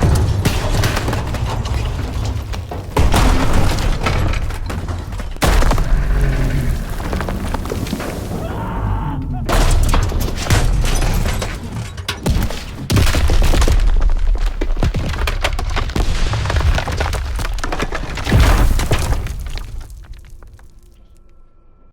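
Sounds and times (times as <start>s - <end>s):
train clanks and bangs: 0.0s - 5.8s, 9.5s - 13.1s.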